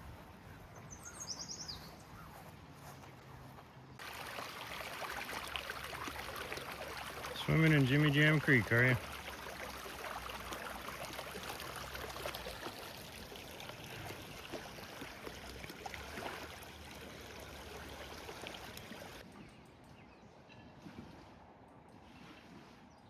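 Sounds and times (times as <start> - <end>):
creek water running: 4.0 - 19.3.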